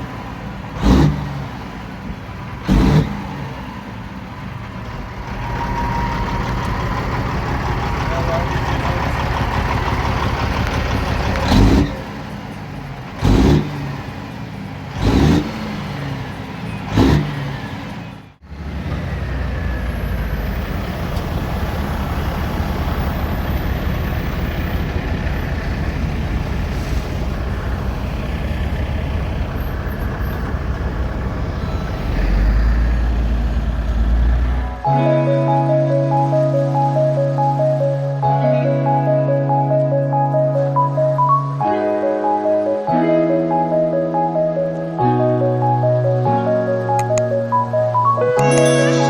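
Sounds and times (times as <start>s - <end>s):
diesel truck engine revving: 0.0s - 34.9s.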